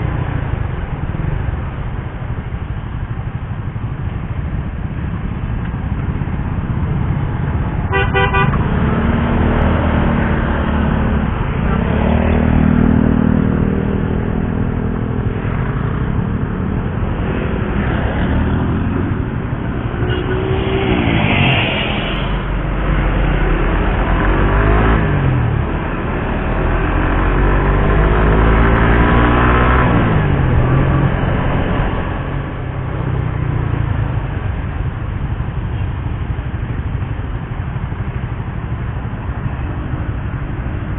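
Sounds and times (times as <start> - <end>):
motorcycle engine accelerating: 5.8 - 35.8
horn toot: 7.9 - 8.8, 19.9 - 21.8.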